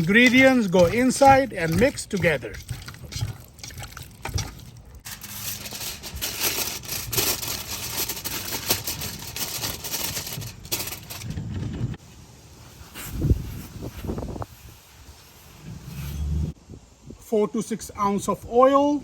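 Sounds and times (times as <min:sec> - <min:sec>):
chicken squishing in marinade: 0:00.0 - 0:05.1.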